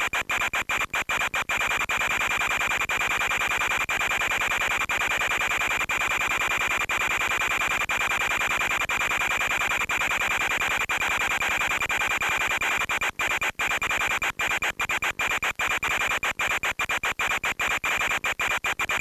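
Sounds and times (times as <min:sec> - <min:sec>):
radio hiss: 0:12.1 - 0:19.0.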